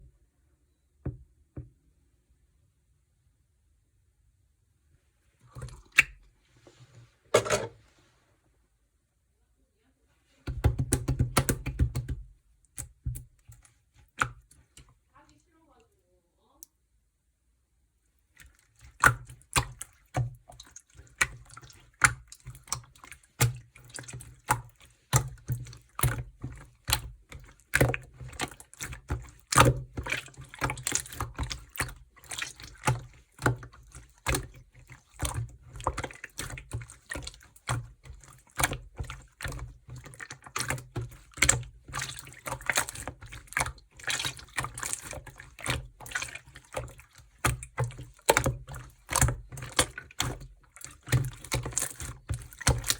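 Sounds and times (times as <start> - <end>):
slime squishing with wet pops: 5.4 - 6.3, 10.4 - 15.0, 18.1 - 52.9.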